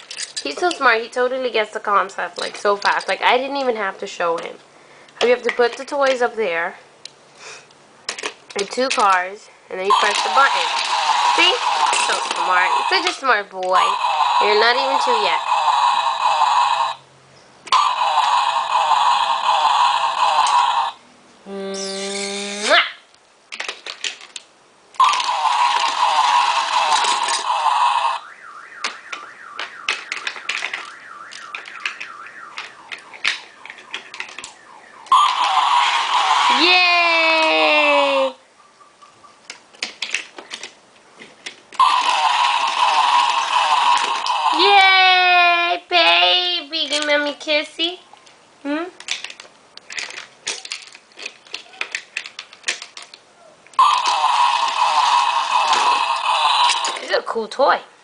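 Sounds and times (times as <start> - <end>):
plastic toy cars clicking: 0.0 - 1.0, 2.0 - 4.5, 8.1 - 9.3, 9.9 - 16.1, 23.5 - 28.2, 28.8 - 36.7, 39.4 - 44.8, 46.2 - 47.3, 49.0 - 57.1
loud noisy electronic burst: 9.9 - 13.2, 13.8 - 17.0, 17.8 - 21.0, 25.0 - 28.2, 35.1 - 36.7, 41.8 - 44.6, 53.8 - 57.1
warbling siren-like tone: 9.9 - 17.0, 17.8 - 21.0, 25.0 - 36.8, 41.8 - 44.7, 53.8 - 57.1.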